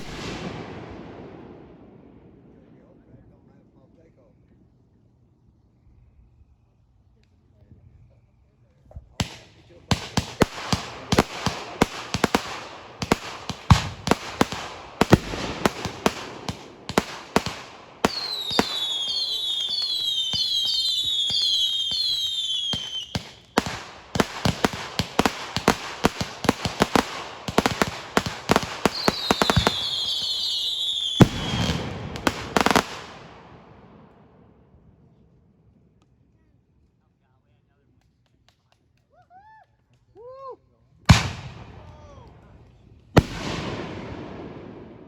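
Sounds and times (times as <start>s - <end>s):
fireworks cracking and banging: 0.0s - 1.7s, 9.1s - 34.4s, 41.1s - 45.0s
heavy firework booms: 0.0s - 3.7s, 9.2s - 34.5s, 41.1s - 42.1s, 43.2s - 45.0s
firework whistles: 10.1s - 33.2s.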